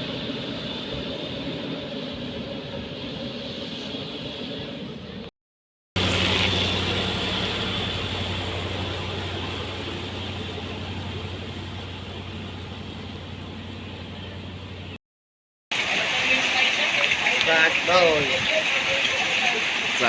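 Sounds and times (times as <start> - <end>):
machinery engine idling: 6.0 - 15.0.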